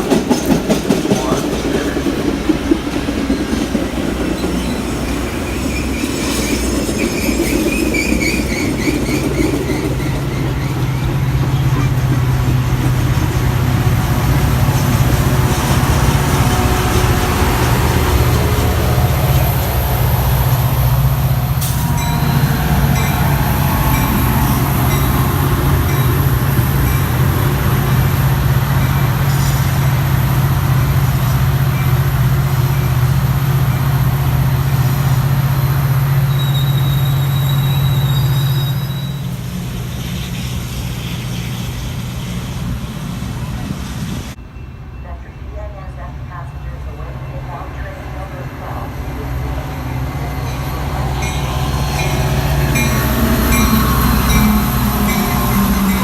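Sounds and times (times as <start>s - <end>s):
train wheels rumbling on rail: 0.0s - 44.4s, 45.4s - 56.0s
diesel locomotive drone: 0.0s - 56.0s
high wheel squeals: 36.2s - 42.7s.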